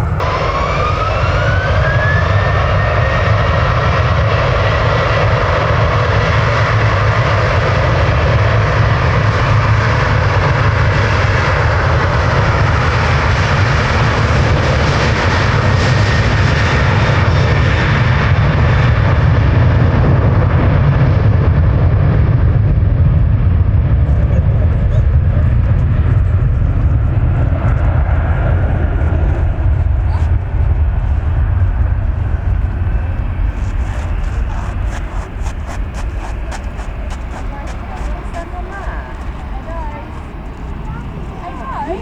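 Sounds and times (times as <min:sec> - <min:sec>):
jet engines roaring with whine: 0:00.0 - 0:42.0.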